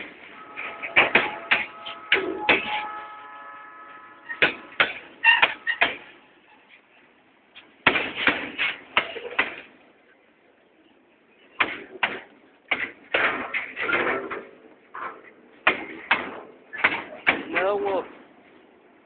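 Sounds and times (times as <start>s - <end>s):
high-pitched squeal: 0.3s - 5.9s.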